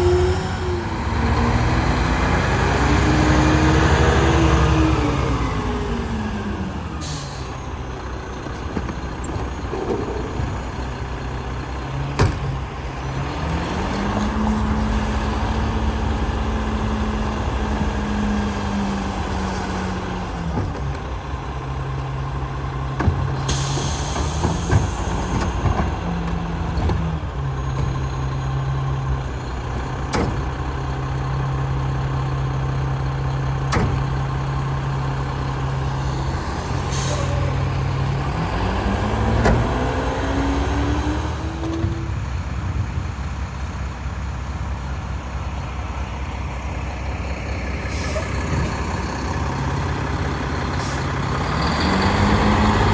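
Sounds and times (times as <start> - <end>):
diesel truck engine running: 0.0 - 52.9
air brakes hissing: 6.9 - 7.7, 23.4 - 25.5, 36.8 - 37.6, 47.8 - 48.7, 50.7 - 51.2.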